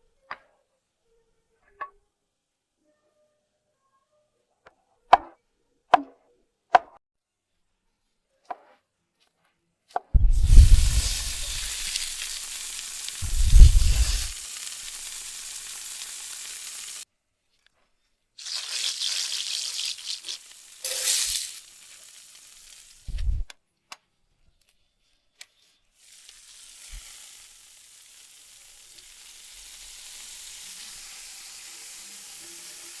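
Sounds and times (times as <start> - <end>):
heavy low thumps: 10.2 - 11.4, 13.2 - 14.3
food sizzling in a pan: 10.2 - 17.1, 18.4 - 23.4, 26.0 - 33.0.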